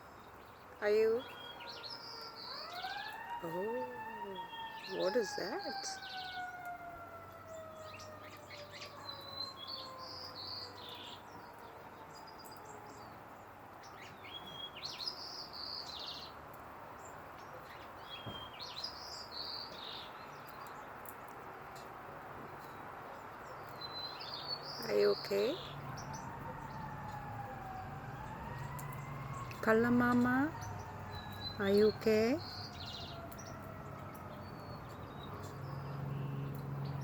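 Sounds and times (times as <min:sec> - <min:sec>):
bird chirping: 0:00.0 - 0:06.7, 0:07.4 - 0:16.4, 0:17.0 - 0:21.4, 0:22.6 - 0:37.0
distant siren-like tone: 0:01.2 - 0:13.1, 0:24.8 - 0:37.0.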